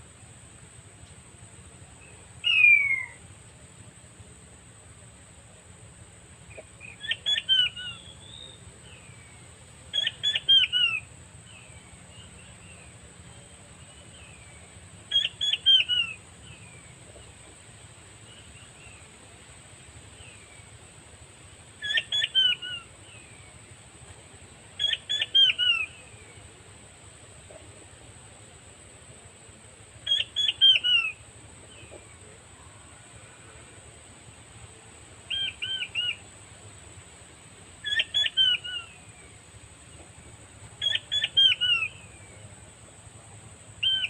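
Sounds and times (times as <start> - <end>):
faint bird chirps: 2.0 - 3.3, 6.5 - 19.3, 21.7 - 23.7, 24.7 - 26.7, 30.0 - 33.8, 35.2 - 36.4, 37.8 - 43.1, 43.8 - 44.0.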